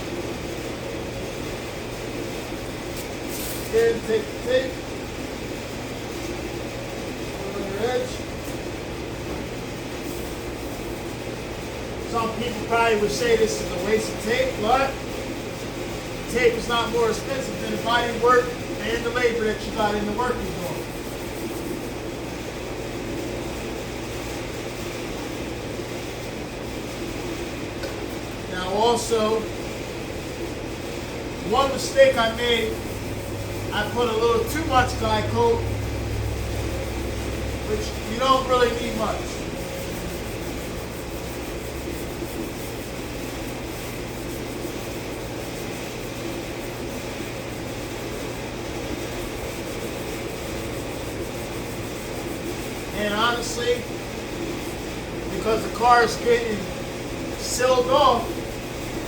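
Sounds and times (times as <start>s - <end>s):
mechanical drone with low hum: 0.0s - 59.0s
sanding block rubbing panel: 36.4s - 54.8s.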